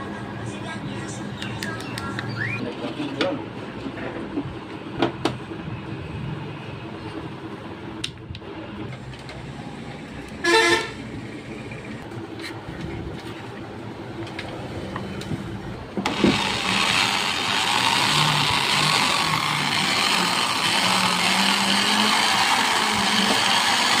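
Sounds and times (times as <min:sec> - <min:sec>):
vehicle horn toot: 0:10.4 - 0:11.1
electric hand drill whirring: 0:16.0 - 0:24.0.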